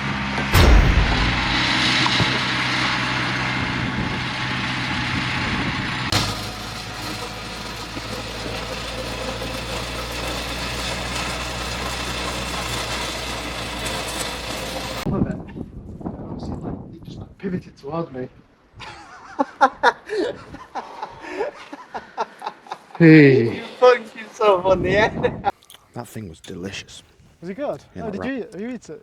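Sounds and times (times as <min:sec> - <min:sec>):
engine running: 0:00.0 - 0:15.1.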